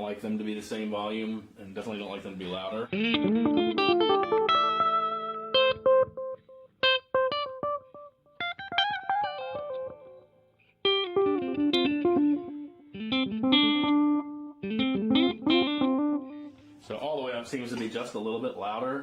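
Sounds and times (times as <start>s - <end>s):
electric guitar with echo repeats: 2.9s - 16.9s.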